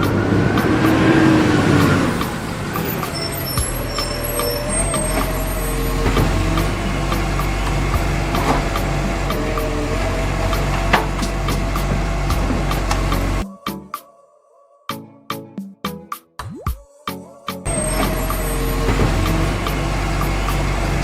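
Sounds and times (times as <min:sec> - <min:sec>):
cartoon truck engine hum: 0:00.0 - 0:13.4, 0:17.7 - 0:21.0.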